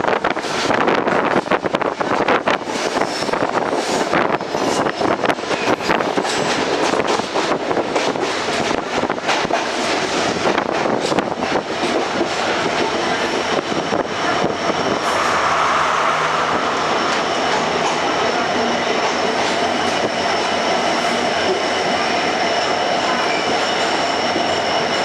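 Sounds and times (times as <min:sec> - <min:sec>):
train rumbling: 0:00.0 - 0:25.0
train wheels clicking over rail joints: 0:00.1 - 0:15.3.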